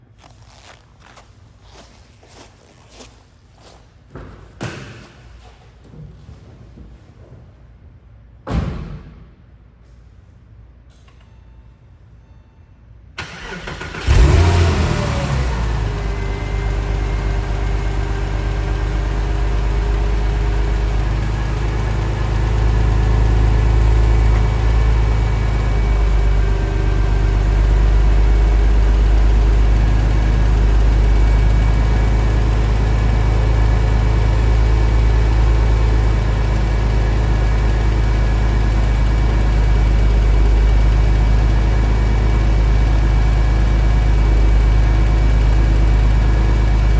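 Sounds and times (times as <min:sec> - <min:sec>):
car engine revving and idling: 0:13.2 - 0:46.9.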